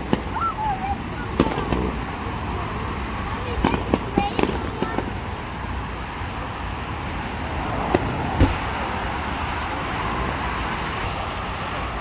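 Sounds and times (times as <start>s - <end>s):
distant firework bangs: 7.9s - 9.3s.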